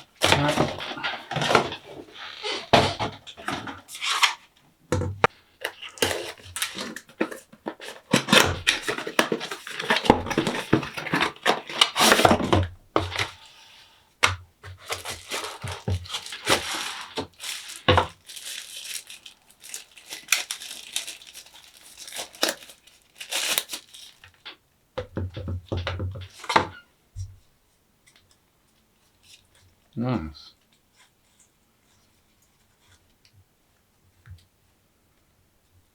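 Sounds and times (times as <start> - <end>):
packaging tearing and rustling: 0.0 - 4.4, 5.7 - 13.5, 14.7 - 24.6.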